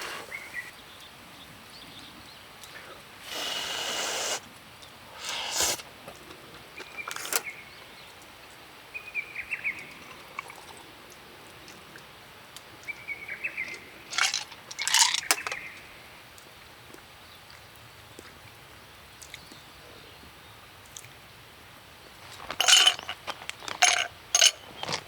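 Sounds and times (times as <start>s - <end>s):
small birds chirping: 0.0s - 14.2s, 17.0s - 21.2s
scraping clatter: 22.4s - 25.0s.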